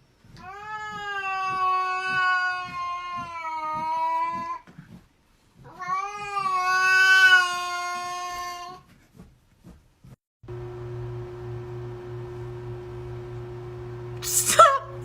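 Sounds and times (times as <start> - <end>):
cat yowling: 0.4 - 4.6, 5.7 - 8.8.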